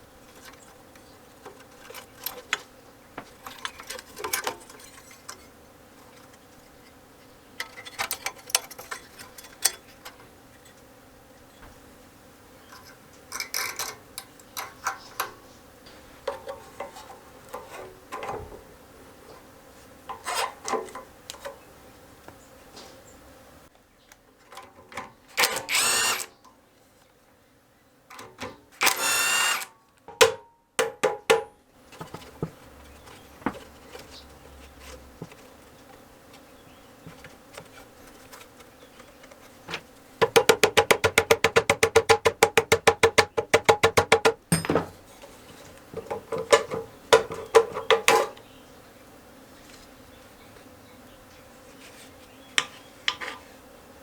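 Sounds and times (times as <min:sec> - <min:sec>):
hand tools clicking and scraping: 0:00.2 - 0:07.0, 0:07.6 - 0:10.8, 0:12.7 - 0:15.4, 0:16.2 - 0:18.4, 0:20.1 - 0:21.6, 0:24.4 - 0:26.4, 0:28.1 - 0:30.3, 0:31.9 - 0:48.4
short bursts of noise: 0:25.4 - 0:26.3, 0:28.8 - 0:29.7
ratchet wrench clicking: 0:28.8 - 0:29.7.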